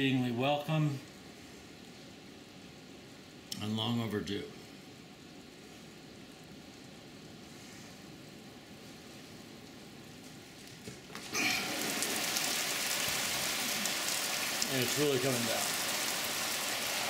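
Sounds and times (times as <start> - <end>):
heavy rain on wooden deck: 5.0 - 17.0.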